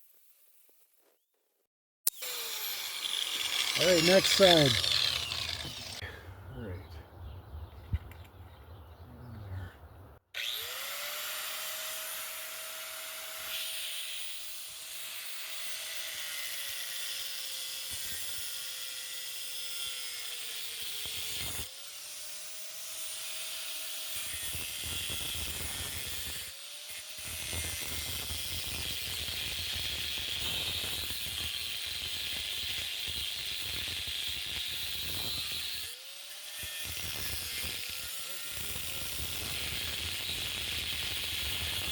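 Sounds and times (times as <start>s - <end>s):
angle grinder cutting metal: 2.1s - 6.0s, 10.4s - 41.9s
harsh cutting hiss: 2.5s - 6.0s.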